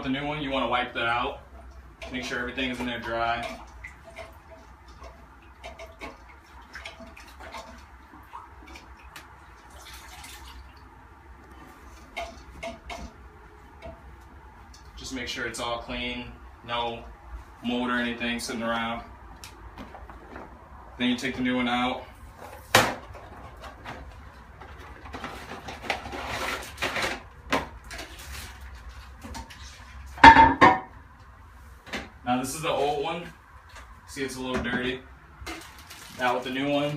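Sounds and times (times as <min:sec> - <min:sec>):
plastic packaging rustling: 0:22.4 - 0:30.1, 0:35.4 - 0:36.9.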